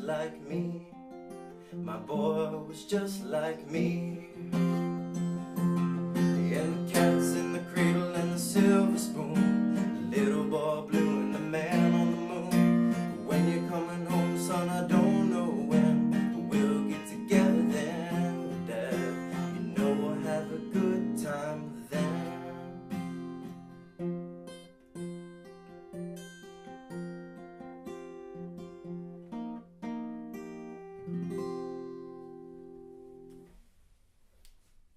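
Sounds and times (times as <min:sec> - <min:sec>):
acoustic guitar strumming: 0:00.0 - 0:33.6.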